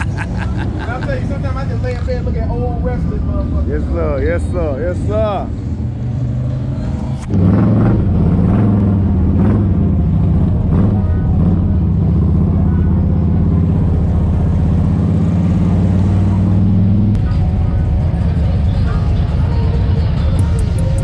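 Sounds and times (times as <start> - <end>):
motorcycle engine running: 7.3 - 21.0.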